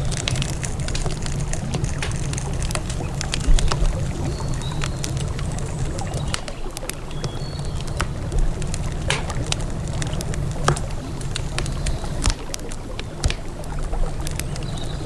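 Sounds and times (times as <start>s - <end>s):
campfire crackling and popping: 0.0s - 15.0s
river water rushing: 7.7s - 15.0s.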